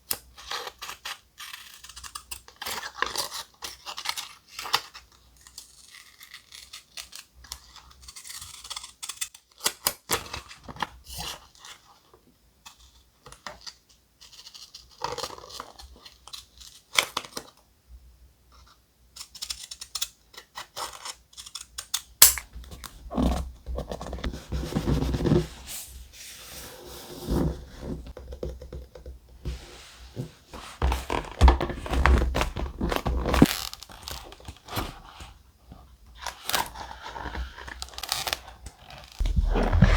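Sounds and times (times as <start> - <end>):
paper rustling and crinkling: 22.5 - 28.2, 29.4 - 35.4, 36.3 - 39.9
dull thumps: 29.5 - 33.5, 39.2 - 39.9
taps and scratches on paper: 39.2 - 39.9.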